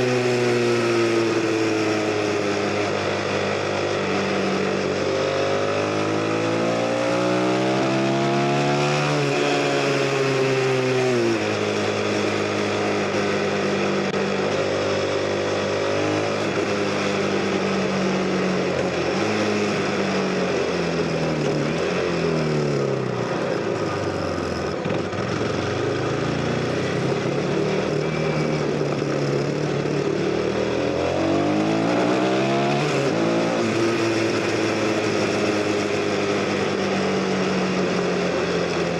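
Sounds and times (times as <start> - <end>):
motorcycle engine shifting gears: 0.0 - 38.9.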